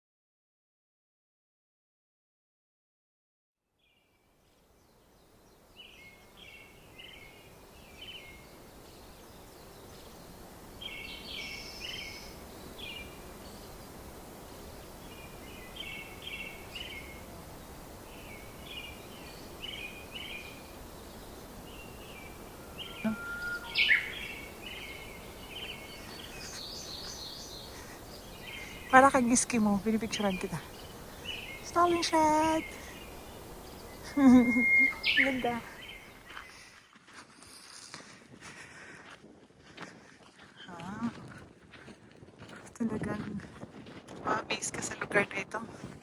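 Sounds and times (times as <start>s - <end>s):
steady outdoor hiss: 3.7s - 46.0s
songbird chirping: 3.8s - 37.8s.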